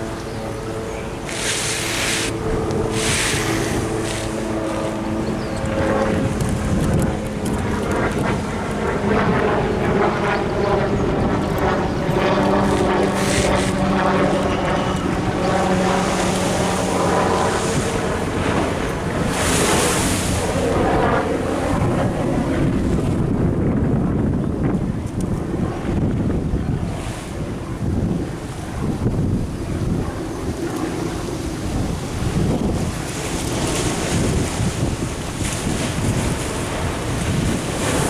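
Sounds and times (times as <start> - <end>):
droning hum: 0.0 - 24.1
wind on microphone: 0.0 - 38.0
surf washing against a wall: 1.2 - 9.0, 12.6 - 21.3, 30.9 - 38.0.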